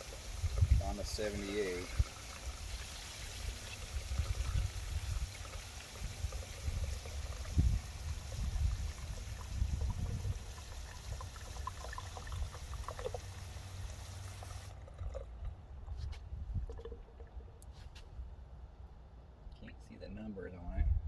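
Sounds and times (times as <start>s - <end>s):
water dripping: 0.0s - 16.0s.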